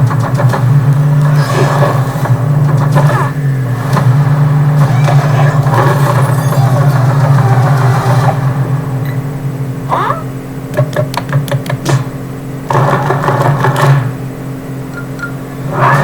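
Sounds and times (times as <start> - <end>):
low hum: 0.0 - 16.0
quick clicks and taps: 10.7 - 12.0.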